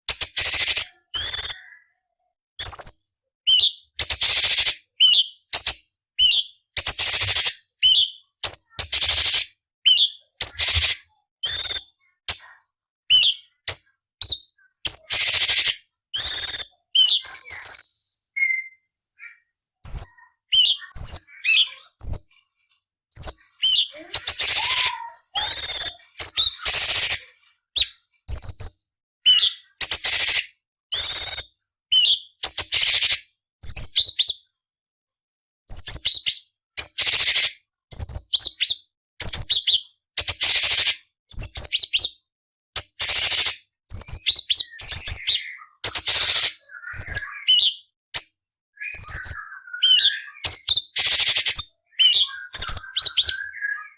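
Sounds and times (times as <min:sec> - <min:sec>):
bird harsh chattering: 0:14.9 - 0:22.2, 0:23.2 - 0:28.0
bird whistled notes: 0:15.1 - 0:22.2, 0:23.2 - 0:27.2, 0:44.0 - 0:47.8, 0:48.8 - 0:53.9.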